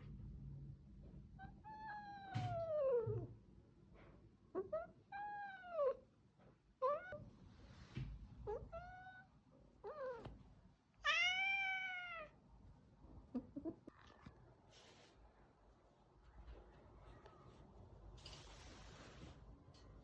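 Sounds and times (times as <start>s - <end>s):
cat meowing: 11.0s - 12.4s.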